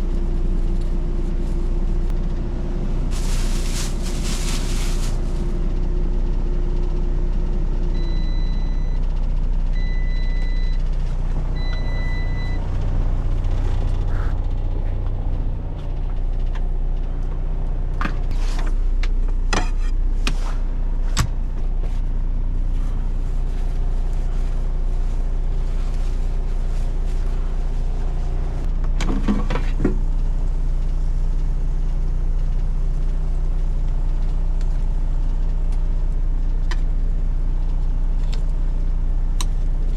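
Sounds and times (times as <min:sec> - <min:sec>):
truck diesel engine idling: 0:00.0 - 0:28.9
appliance hum: 0:00.0 - 0:39.9
short electronic beeps: 0:09.8 - 0:10.8, 0:11.6 - 0:12.6.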